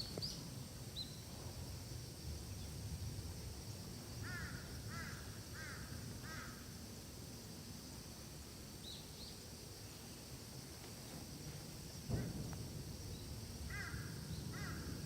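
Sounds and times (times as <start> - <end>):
steady high hiss: 0.0 - 15.0
crow cawing: 4.2 - 6.6, 13.7 - 14.9.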